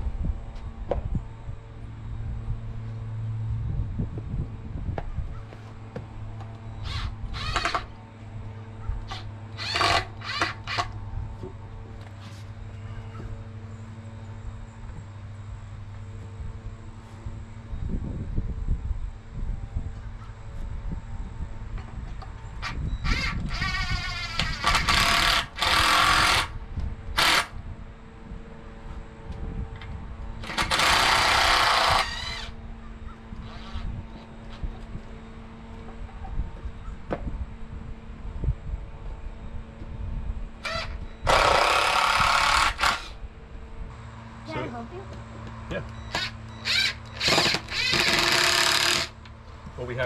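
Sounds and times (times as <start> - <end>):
steady low hum: 0.0 - 50.0
cordless drill driving screws: 6.8 - 7.9, 9.1 - 10.9, 22.6 - 26.6, 27.2 - 27.5, 30.4 - 32.5, 40.6 - 43.2, 46.1 - 49.2.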